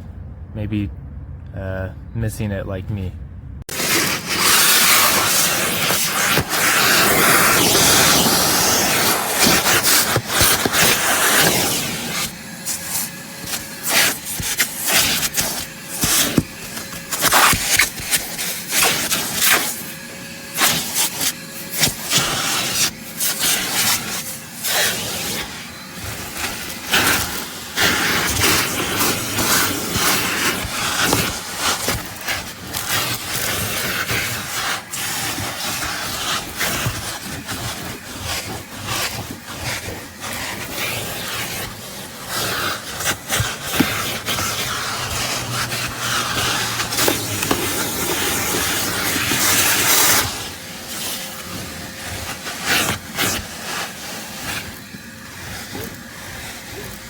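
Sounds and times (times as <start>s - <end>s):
shop vacuum running: 3.4s - 57.0s
vacuum nozzle scraping debris: 3.7s - 57.0s.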